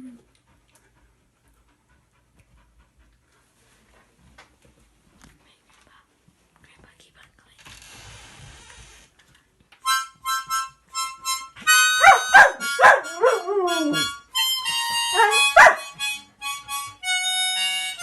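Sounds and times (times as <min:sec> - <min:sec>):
harmonica chords: 0:09.8 - 0:18.0
dog howling: 0:12.0 - 0:14.2, 0:15.1 - 0:15.8.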